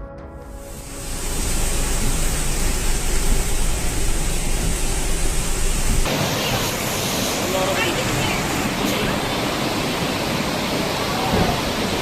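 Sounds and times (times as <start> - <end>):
deep rumble: 0.6 - 7.4
heavy rain: 0.6 - 12.0
floodwater rushing: 0.7 - 12.0.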